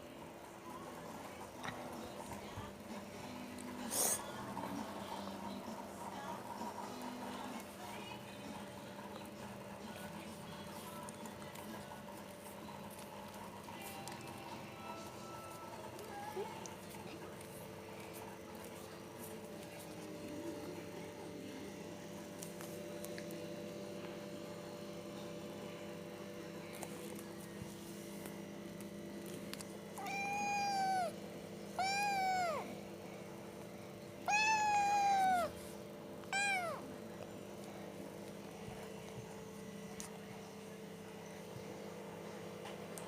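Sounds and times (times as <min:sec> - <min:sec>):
steady background hum: 0:00.0 - 0:43.0
cat meowing: 0:30.0 - 0:31.2, 0:31.8 - 0:32.7, 0:34.2 - 0:35.6, 0:36.2 - 0:36.9.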